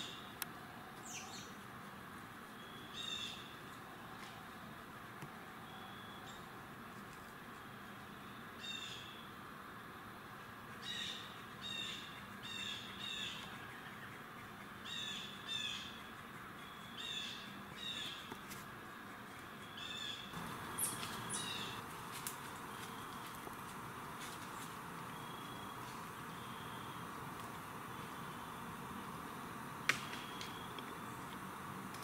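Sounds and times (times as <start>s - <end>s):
bird calling: 19.4s - 31.6s.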